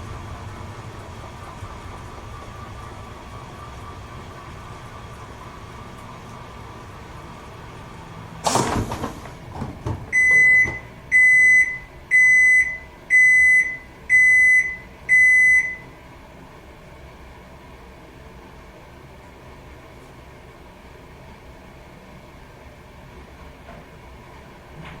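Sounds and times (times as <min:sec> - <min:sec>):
washing machine clunk: 0:08.4 - 0:12.2, 0:24.8 - 0:25.0.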